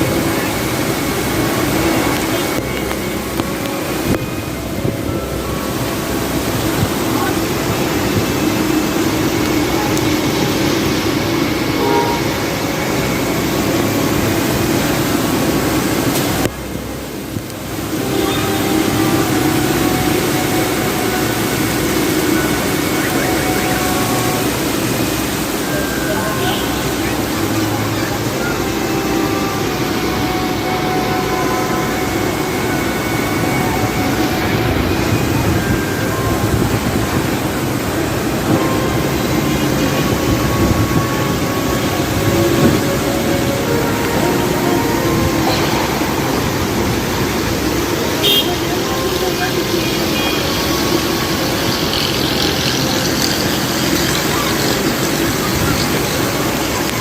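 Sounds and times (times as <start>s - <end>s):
street traffic: 0.0s - 57.0s.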